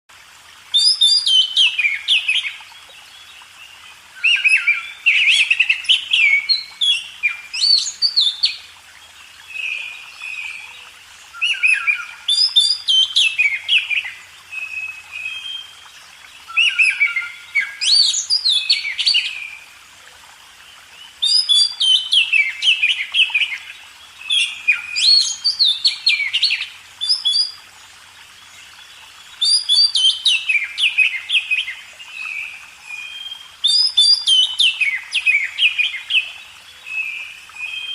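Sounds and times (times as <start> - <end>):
bird singing whistled phrases: 4.2 - 8.6, 11.4 - 15.7, 16.5 - 19.4, 24.2 - 27.6, 33.0 - 36.3.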